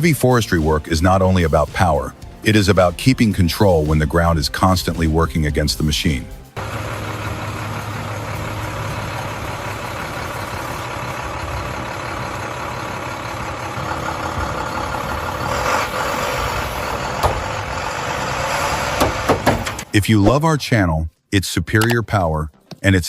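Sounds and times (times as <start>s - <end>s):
diesel engine running under load: 6.6s - 19.9s
sharp knock: 19.0s - 19.8s.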